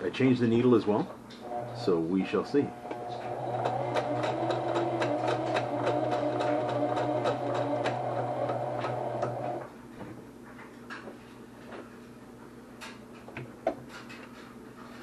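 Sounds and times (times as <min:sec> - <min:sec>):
sewing machine stitching: 0:02.8 - 0:09.6.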